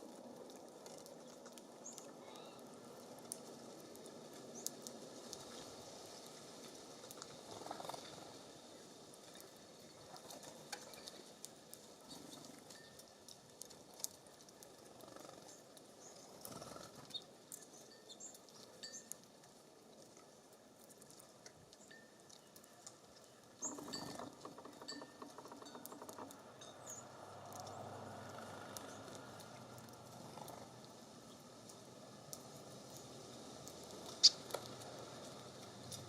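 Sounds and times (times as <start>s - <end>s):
songbirds chirping: 0.8s - 3.4s, 4.1s - 6.4s, 13.9s - 20.4s, 21.7s - 36.0s.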